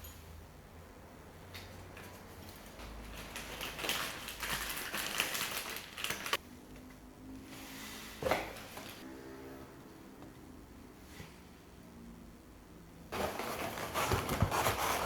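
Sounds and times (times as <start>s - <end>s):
packaging rustling and crinkling: 2.8s - 6.4s, 13.1s - 15.0s.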